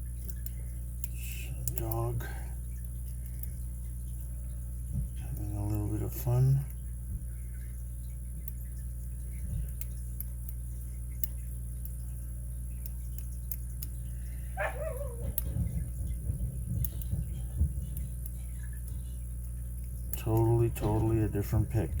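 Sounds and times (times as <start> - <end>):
steady low hum: 0.0 - 22.0
dog whining: 14.6 - 15.7.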